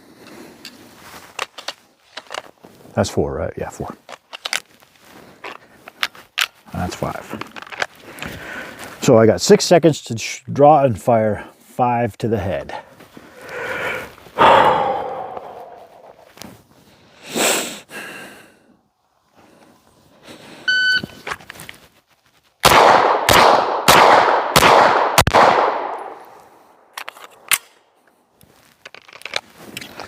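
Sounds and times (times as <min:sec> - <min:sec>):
loud noises: 0:14.4 - 0:16.2
shot timer beep: 0:20.7 - 0:21.1
pistol shots ringing: 0:22.6 - 0:26.2.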